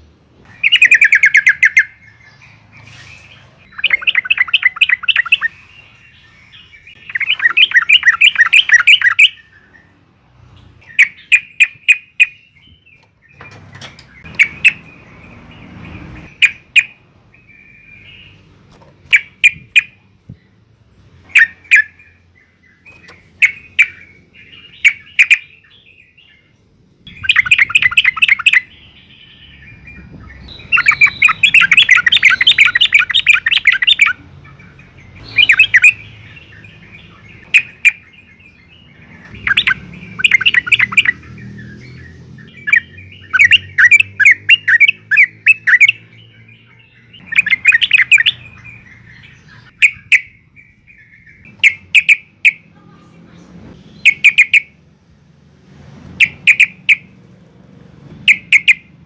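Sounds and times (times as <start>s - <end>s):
bulbul bubbling calls: 3.7s - 5.5s, 27.1s - 28.6s, 30.7s - 34.2s, 39.4s - 41.2s.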